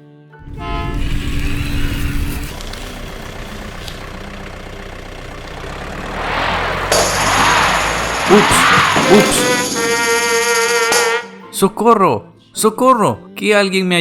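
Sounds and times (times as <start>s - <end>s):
heavy vehicle engine under load: 0.4s - 11.1s
rush of noise: 6.0s - 10.4s.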